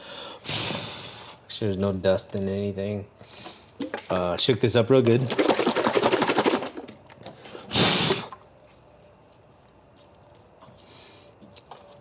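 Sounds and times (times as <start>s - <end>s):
air blow gun hiss: 0.0s - 1.4s, 7.7s - 8.4s.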